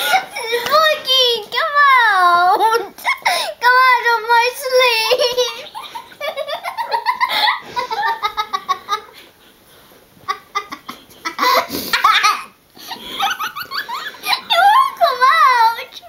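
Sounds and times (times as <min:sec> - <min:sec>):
little girl laughing: 0:00.0 - 0:01.0, 0:02.1 - 0:03.5, 0:04.9 - 0:09.1, 0:10.3 - 0:15.9.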